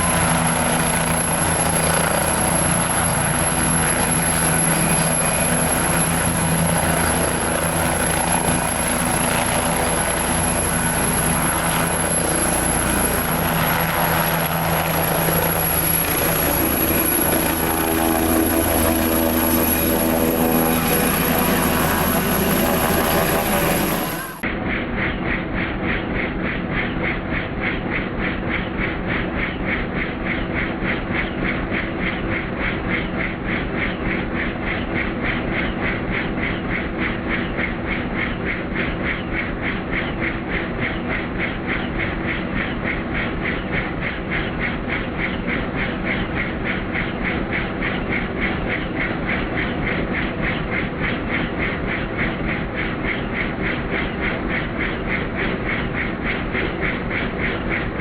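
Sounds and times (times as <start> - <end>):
helicopter engine hum: 0.0 - 58.0
helicopter rotor blades chopping: 0.0 - 58.0.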